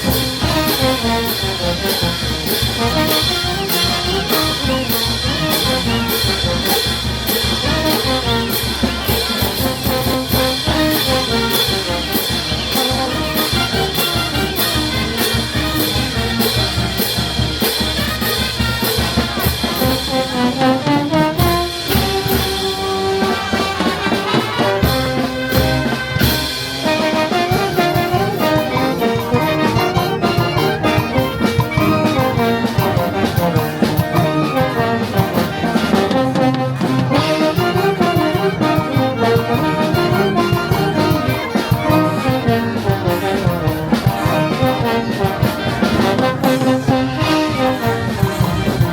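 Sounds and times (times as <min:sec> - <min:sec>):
brass band playing: 0:00.0 - 0:48.9
drums and cymbals: 0:00.0 - 0:48.9.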